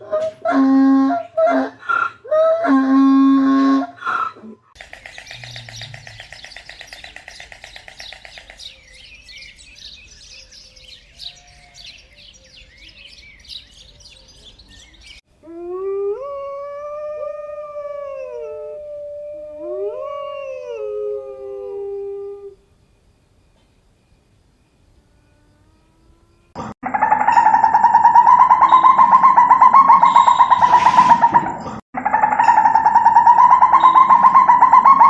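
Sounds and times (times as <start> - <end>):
high chirping calls: 4.8 - 15.2, 27.2 - 35.0
canine howl: 15.4 - 22.6.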